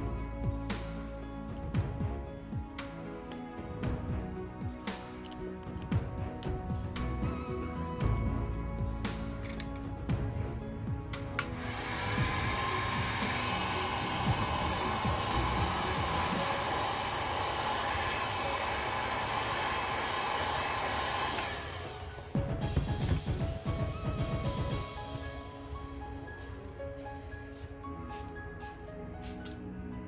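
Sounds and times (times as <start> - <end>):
background music: 0.0 - 30.0
electric blower running: 11.2 - 23.4.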